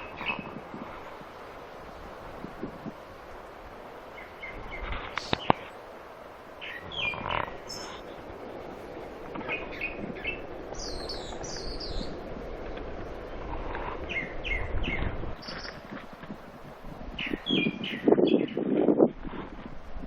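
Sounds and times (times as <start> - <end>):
outdoor background rush: 0.0 - 20.0
small birds chirping: 4.1 - 5.8, 6.6 - 8.2, 9.3 - 12.2, 13.7 - 16.0, 17.2 - 18.7.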